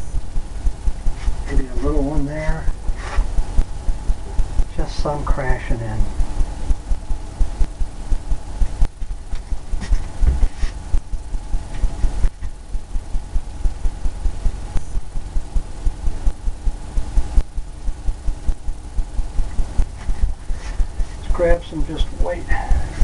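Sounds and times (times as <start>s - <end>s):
paintbrush dabbing on canvas: 1.1s - 2.0s, 2.9s - 3.4s, 9.8s - 10.9s, 19.9s - 21.3s.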